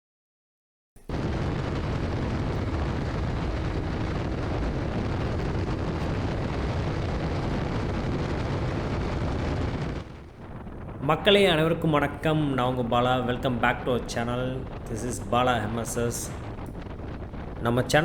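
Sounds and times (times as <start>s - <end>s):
motorcycle engine droning: 1.0s - 11.5s
wind rush over microphone: 1.0s - 18.0s.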